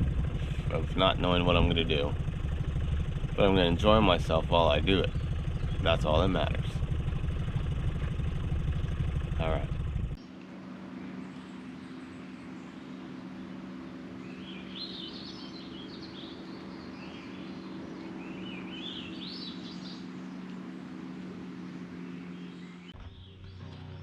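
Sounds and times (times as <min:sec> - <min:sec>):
steady low hum: 0:00.0 - 0:24.0
small bird chirping: 0:04.6 - 0:06.6, 0:11.0 - 0:24.0.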